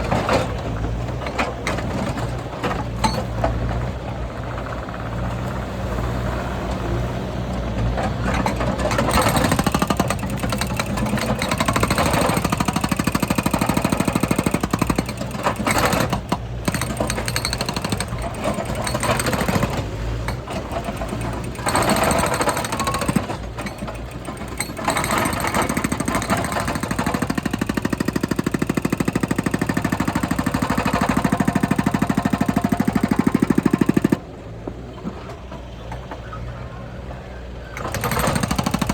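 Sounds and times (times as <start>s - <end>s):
skid steer loader engine pulsing: 0.0s - 38.9s.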